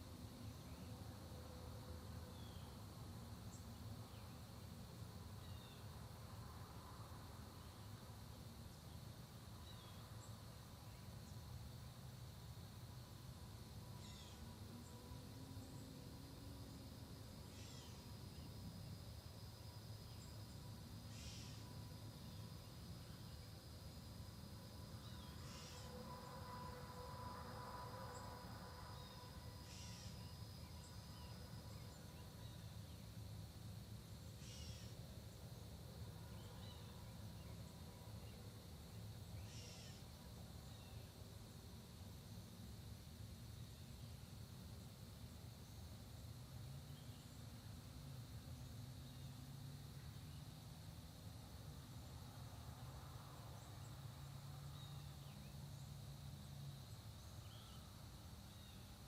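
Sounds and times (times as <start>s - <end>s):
high insect drone: 0.0s - 59.0s
distant songbirds chirping: 2.1s - 6.0s, 7.5s - 41.6s, 53.4s - 59.0s.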